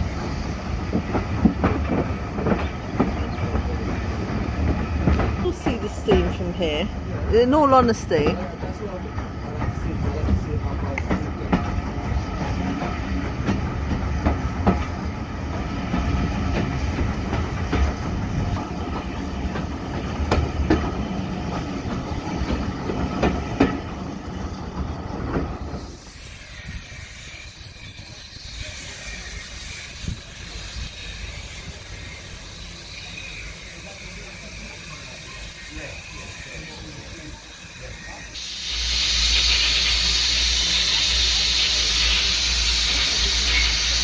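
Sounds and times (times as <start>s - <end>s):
rail clicks: 0.0s - 44.0s
steam train rumbling on rails: 0.0s - 44.0s
steam hissing: 25.4s - 44.0s.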